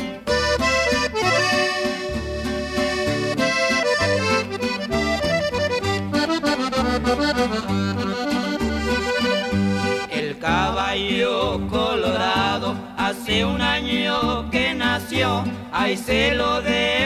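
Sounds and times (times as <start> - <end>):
button accordion melody: 0.0 - 10.4
steady bass line: 0.0 - 17.0.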